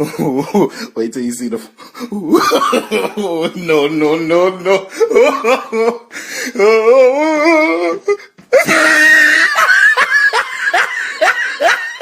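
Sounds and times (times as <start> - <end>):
person laughing hard: 2.2 - 3.8, 4.7 - 12.0.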